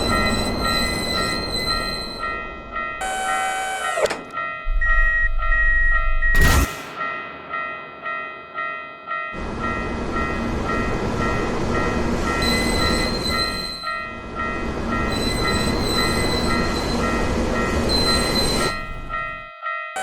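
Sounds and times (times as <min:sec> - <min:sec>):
high whistling tone: 0:00.0 - 0:02.4, 0:12.4 - 0:14.0, 0:15.1 - 0:17.1, 0:17.9 - 0:18.9
crossing warning bell ringing: 0:00.0 - 0:06.4, 0:07.0 - 0:20.0
train rumbling: 0:00.0 - 0:20.0.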